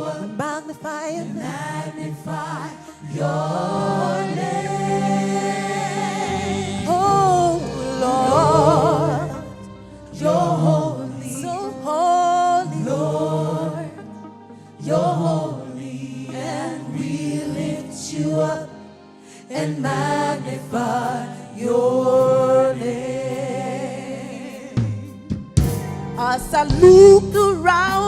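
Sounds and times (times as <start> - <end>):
gospel wordless singing: 0.0 - 28.0
music accompaniment: 0.0 - 28.0.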